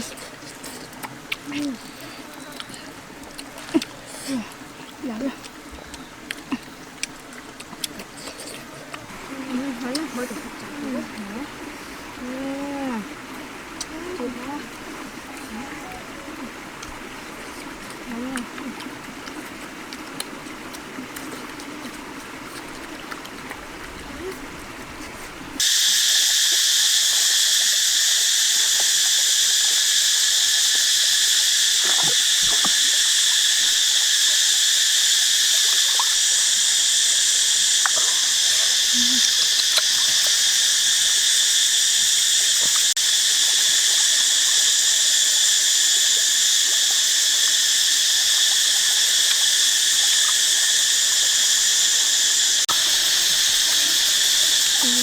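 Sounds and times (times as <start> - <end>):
insects shrill drone: 12.2 - 17.8, 25.6 - 55.0.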